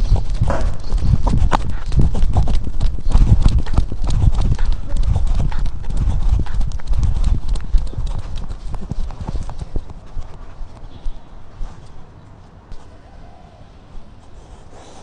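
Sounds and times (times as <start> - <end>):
camera knocking and thumping: 0.0 - 11.0.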